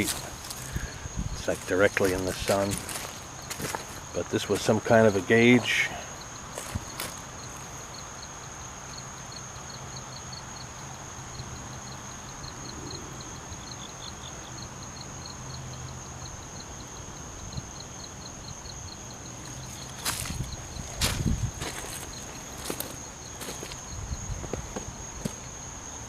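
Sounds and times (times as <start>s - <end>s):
footsteps crunching: 0.0s - 5.8s, 6.5s - 7.8s, 19.4s - 25.5s
crickets chirping: 0.0s - 26.0s.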